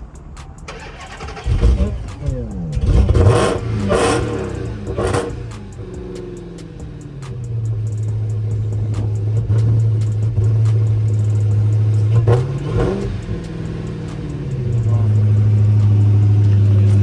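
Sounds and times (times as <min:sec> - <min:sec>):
car engine idling: 0:00.0 - 0:17.0
engine revving: 0:00.0 - 0:17.0.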